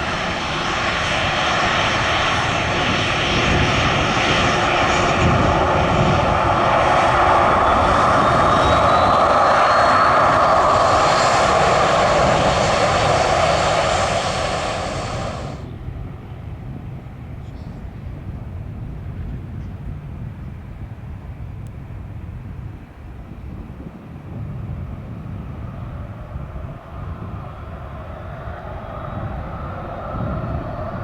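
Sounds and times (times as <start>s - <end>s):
airliner engines passing: 0.0s - 31.0s.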